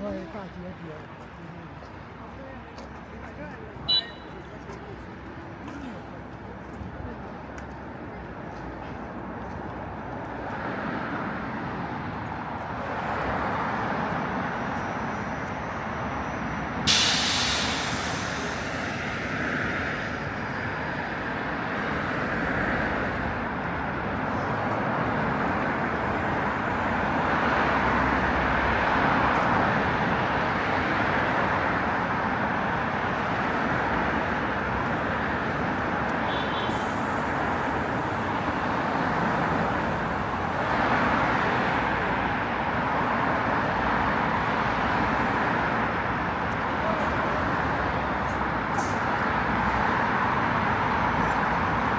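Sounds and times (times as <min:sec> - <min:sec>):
road traffic passing: 0:00.0 - 0:51.9
air brakes hissing: 0:16.8 - 0:19.4, 0:36.6 - 0:38.7, 0:48.7 - 0:49.2.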